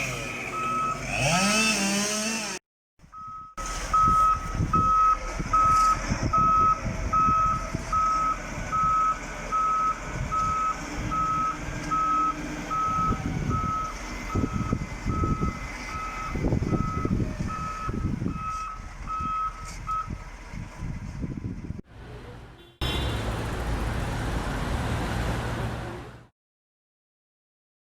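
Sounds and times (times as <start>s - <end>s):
reversing alarm beeping: 0.5s - 1.6s, 3.1s - 20.2s
diesel engine rumble: 3.0s - 26.3s.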